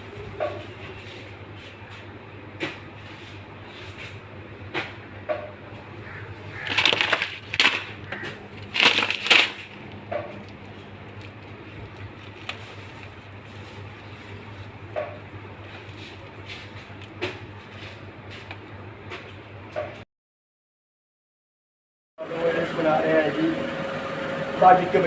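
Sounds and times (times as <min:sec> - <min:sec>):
rustling clatter: 0:06.6 - 0:08.0, 0:08.6 - 0:18.6.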